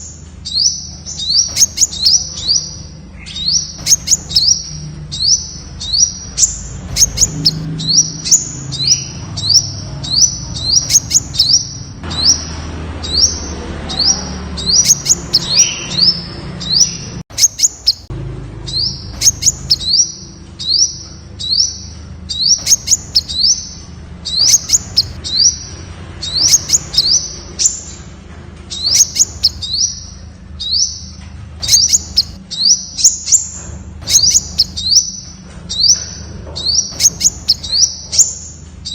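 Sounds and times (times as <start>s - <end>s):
bird chirping: 0.0s - 38.9s.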